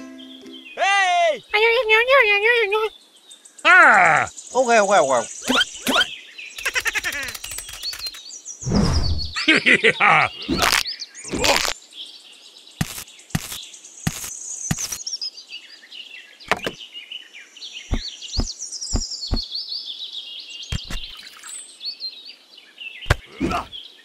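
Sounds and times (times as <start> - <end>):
small birds chirping: 0.0 - 24.0
short sharp clicks: 7.0 - 8.2.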